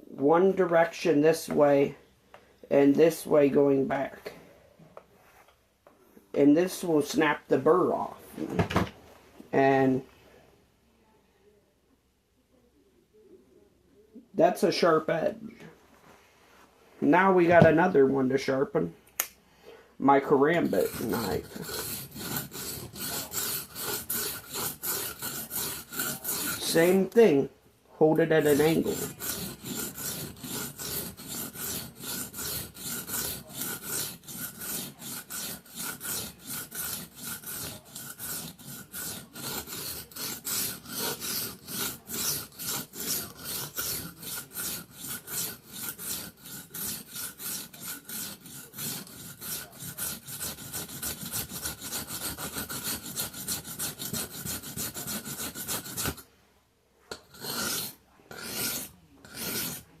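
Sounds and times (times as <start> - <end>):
knife blade rasping on whetstone: 20.5 - 27.2, 28.2 - 56.2, 57.1 - 59.9.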